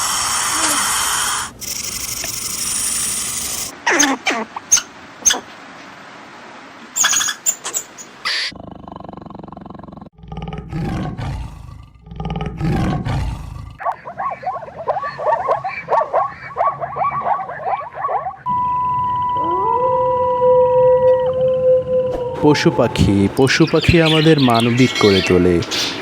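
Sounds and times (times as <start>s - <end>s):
big cat roaring: 0.0s - 1.5s, 8.5s - 18.4s
high-pitched animal calls: 0.0s - 5.5s, 7.0s - 8.6s, 13.8s - 18.5s, 19.1s - 25.4s
steady tone: 14.0s - 23.5s.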